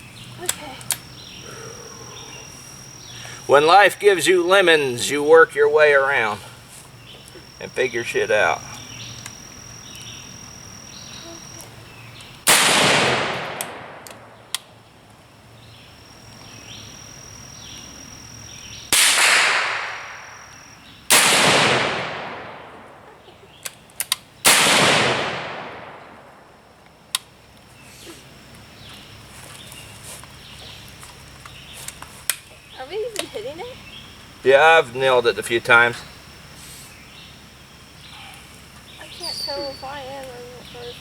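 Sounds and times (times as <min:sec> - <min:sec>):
faint clicks: 0:08.7 - 0:10.2
rifle shots echoing: 0:12.5 - 0:14.5, 0:18.9 - 0:23.1, 0:24.4 - 0:26.6.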